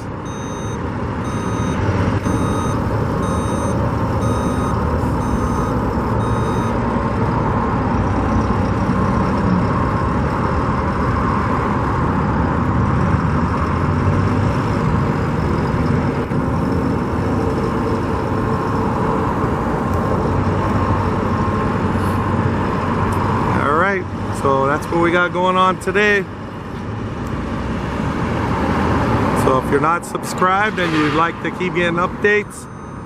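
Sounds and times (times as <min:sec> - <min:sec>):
construction machinery engine drone: 0:00.0 - 0:33.0
back-up alarm beeping: 0:00.2 - 0:06.8, 0:32.3 - 0:33.0.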